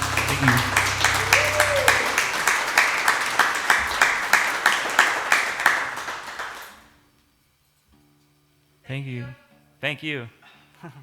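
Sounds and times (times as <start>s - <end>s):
nearby hands clapping steadily: 0.0s - 6.9s
small audience applauding: 0.0s - 7.0s.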